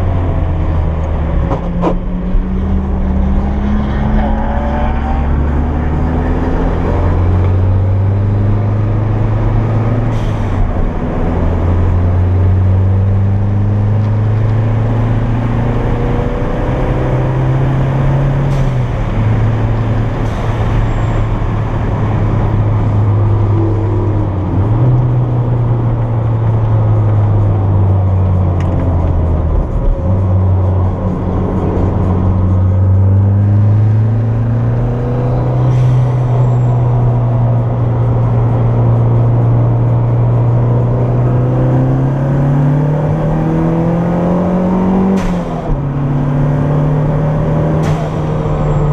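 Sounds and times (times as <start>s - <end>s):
car engine revving hard: 37.6s - 48.9s.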